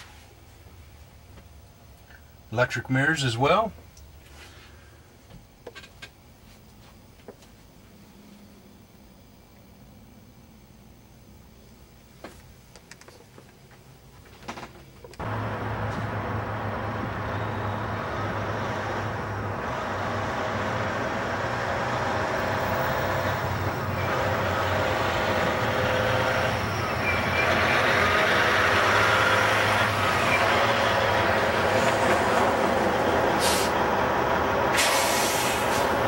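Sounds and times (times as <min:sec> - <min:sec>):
diesel truck engine humming: 0:15.2 - 0:36.0.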